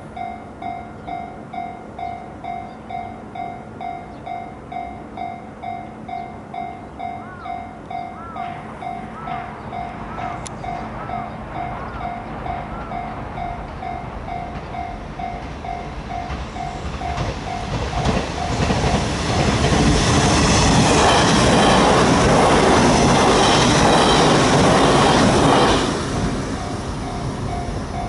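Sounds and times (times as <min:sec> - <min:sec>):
electric train passing: 0:00.0 - 0:28.0
level crossing warning bell: 0:00.0 - 0:28.0.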